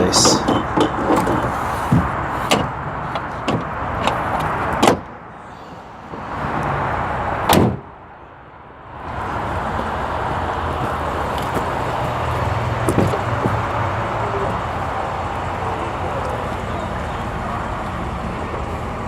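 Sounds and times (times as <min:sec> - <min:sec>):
steady background noise: 0:00.0 - 0:19.0
heavy truck door slams: 0:00.3 - 0:05.1, 0:07.4 - 0:07.9.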